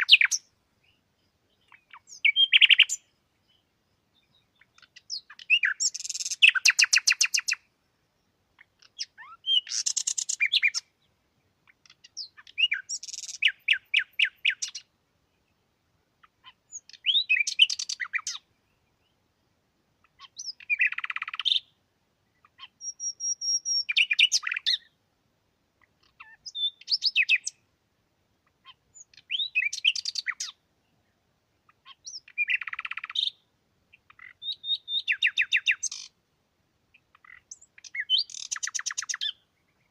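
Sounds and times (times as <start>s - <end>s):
songbird trilling: 0.0s - 1.0s, 1.6s - 7.6s, 8.6s - 10.9s, 11.6s - 14.9s, 16.3s - 18.5s, 20.0s - 21.8s, 22.4s - 24.9s, 26.0s - 27.6s, 28.6s - 30.6s, 31.7s - 36.2s, 36.9s - 39.9s.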